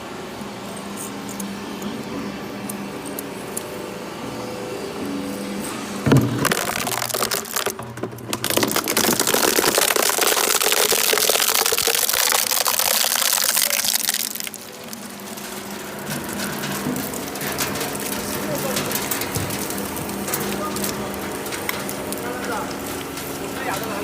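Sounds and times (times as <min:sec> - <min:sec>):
machine humming: 0:00.0 - 0:24.0
shredder crushing material: 0:05.8 - 0:24.0.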